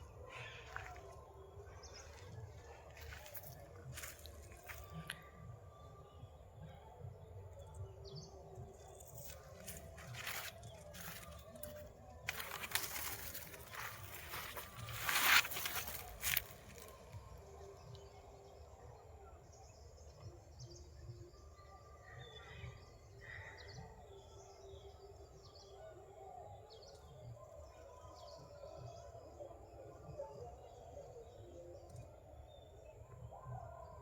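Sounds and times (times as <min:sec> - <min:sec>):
birds chirping and whistling: 0:08.6 - 0:17.6.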